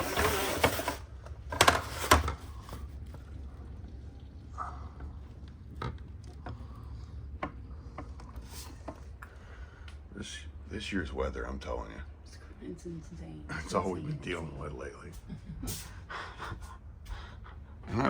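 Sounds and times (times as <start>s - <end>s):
steady low rumble: 2.5s - 18.0s.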